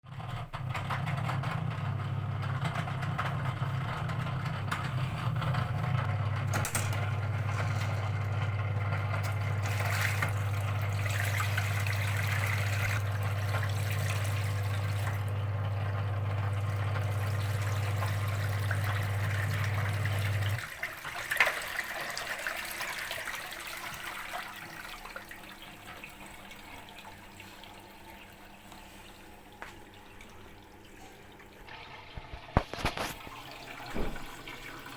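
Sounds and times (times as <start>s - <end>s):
pump motor humming: 0.5s - 34.9s
water noise: 6.5s - 22.8s, 25.0s - 34.9s
water trickle: 7.0s - 34.9s.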